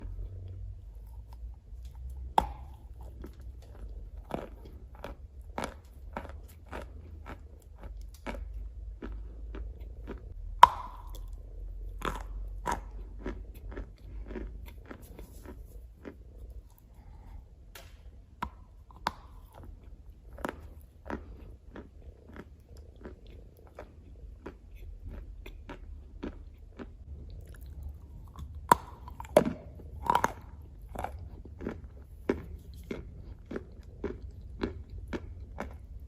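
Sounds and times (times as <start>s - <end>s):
dry chewing crunches: 0.0s - 17.4s, 18.4s - 36.0s
clay biting snaps: 1.8s - 4.5s, 10.6s - 11.4s, 17.7s - 19.8s.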